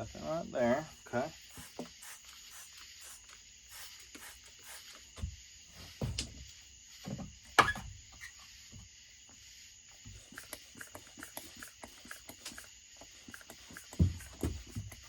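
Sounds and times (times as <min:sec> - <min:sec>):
tools clicking and tapping: 0:10.3 - 0:15.0.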